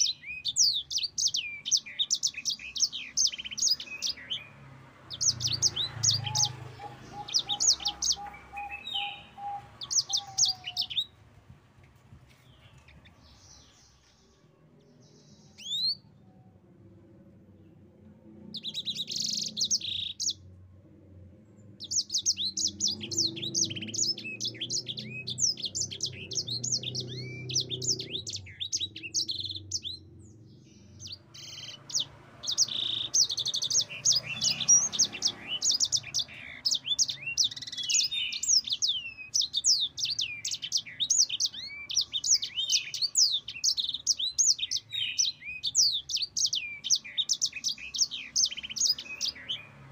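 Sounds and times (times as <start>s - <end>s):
canary singing trilled notes: 0.0s - 11.2s, 18.5s - 20.5s, 21.8s - 49.8s.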